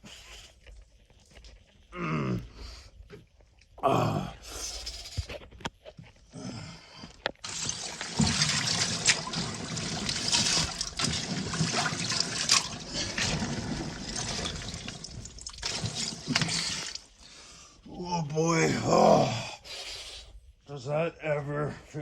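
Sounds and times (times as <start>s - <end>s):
water sloshing and trickling: 7.4s - 17.3s.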